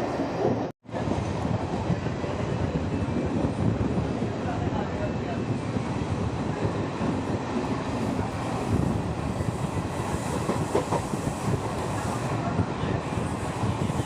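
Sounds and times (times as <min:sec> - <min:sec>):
train wheels clattering on track: 0:06.6 - 0:14.0.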